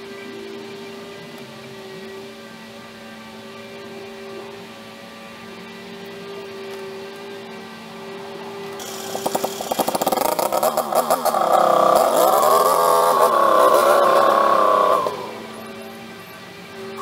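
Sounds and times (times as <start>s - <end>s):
tractor engine revving: 8.6s - 17.0s.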